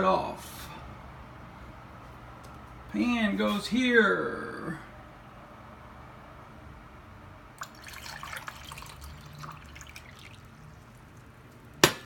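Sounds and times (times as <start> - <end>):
hot water pouring and splashing: 7.6 - 11.8
sharp knock: 11.8 - 12.0.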